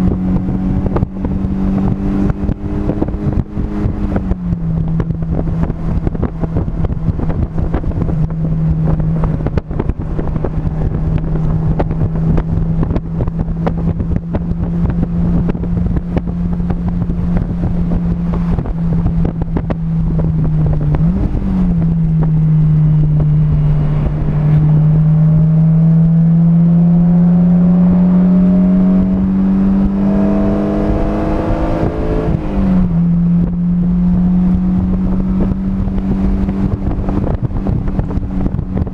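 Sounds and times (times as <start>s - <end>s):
race car engine: 0.0s - 38.9s
wind buffeting microphone: 0.0s - 38.9s.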